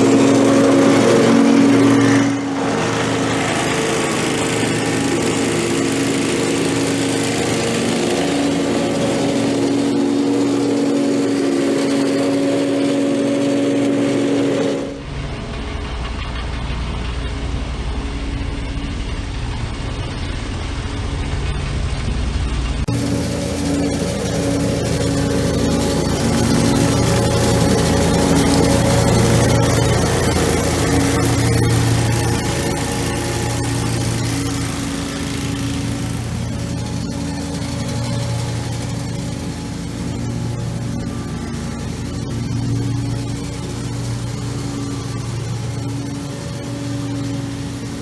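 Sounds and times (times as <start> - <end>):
lawn mower engine running: 0.0 - 15.0, 22.9 - 48.0
deep dull engine rumble: 22.9 - 48.0.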